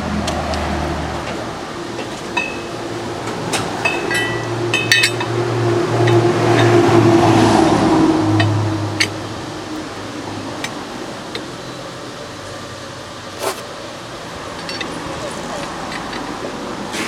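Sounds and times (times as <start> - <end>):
steady mechanical hum: 0.0 - 17.0
metal clinking on metal: 2.4 - 2.8, 3.5 - 5.4, 14.5 - 16.3.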